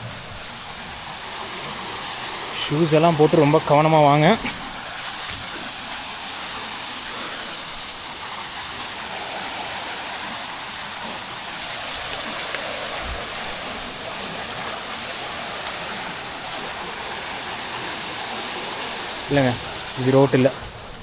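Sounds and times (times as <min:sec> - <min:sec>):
waterfall rushing: 0:00.0 - 0:21.0
faint ticks: 0:11.4 - 0:17.2.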